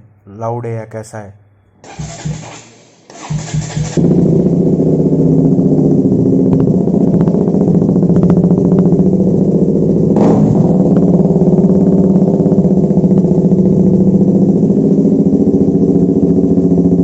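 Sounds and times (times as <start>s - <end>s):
motorcycle engine idling: 1.9s - 17.0s.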